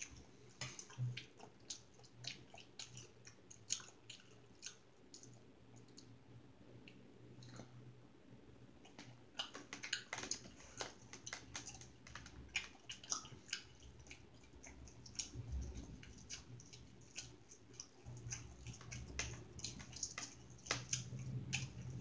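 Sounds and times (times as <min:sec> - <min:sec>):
person chewing with wet smacking: 0:00.0 - 0:06.2, 0:08.8 - 0:22.0.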